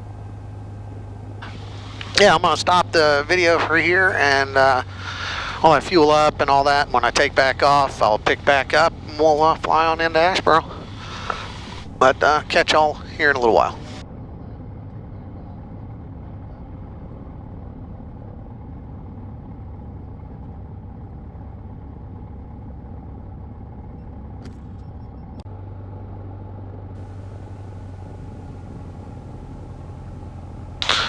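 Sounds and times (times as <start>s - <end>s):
aircraft engine idling: 0.0s - 31.0s.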